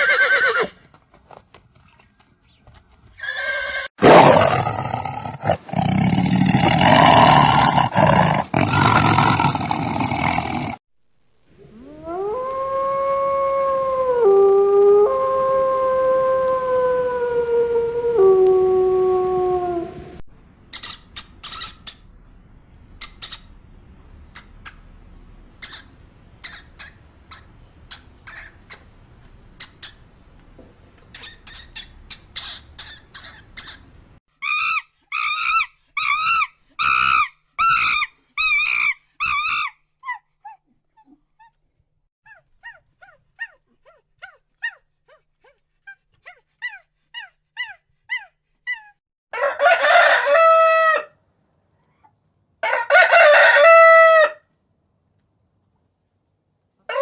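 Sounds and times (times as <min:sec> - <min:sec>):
howl: 0:11.6 - 0:20.2, 0:52.6 - 0:54.4
light hiss: 0:20.4 - 0:34.2
faint rapid twittering chirps: 0:20.7 - 0:34.0
high chirps and squeaks: 0:20.7 - 0:34.2
loud calls: 0:20.7 - 0:35.6.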